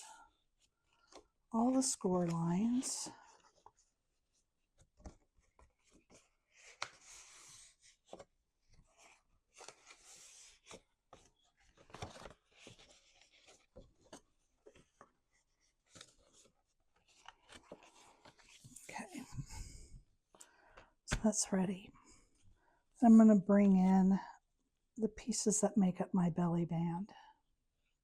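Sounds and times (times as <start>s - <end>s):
cardstock being folded: 4.8s - 18.9s.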